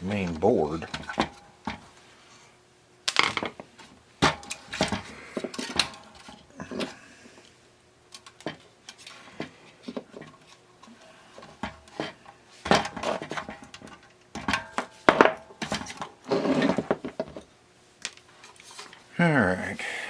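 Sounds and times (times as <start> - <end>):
tools clattering on a workbench: 3.1 - 7.0, 11.4 - 19.0.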